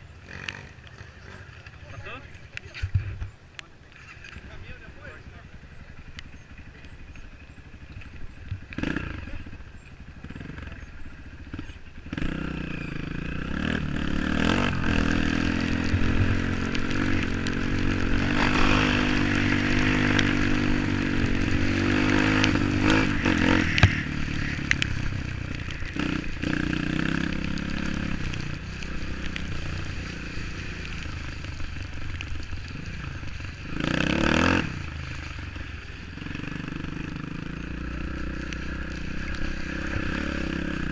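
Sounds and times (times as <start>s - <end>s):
off-road vehicle engine revving: 7.6s - 31.2s, 32.8s - 35.3s, 36.2s - 40.9s.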